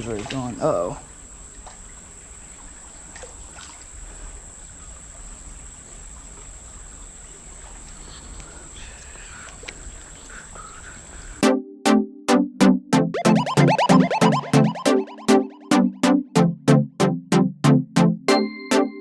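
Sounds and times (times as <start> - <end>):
high-pitched steady tone: 11.4 - 19.0.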